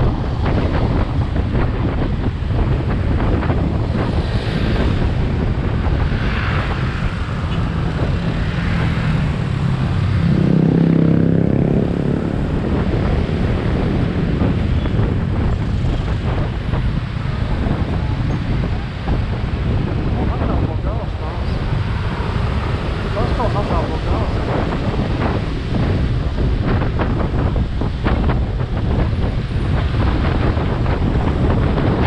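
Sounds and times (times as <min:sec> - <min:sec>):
motorcycle engine drone: 0:00.0 - 0:32.0
wind on microphone: 0:00.0 - 0:32.0.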